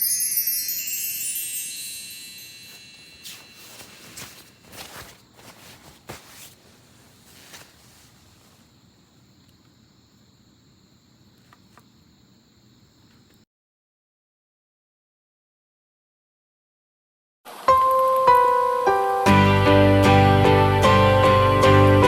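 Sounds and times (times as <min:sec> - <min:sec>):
crickets trilling: 0:00.0 - 0:13.4.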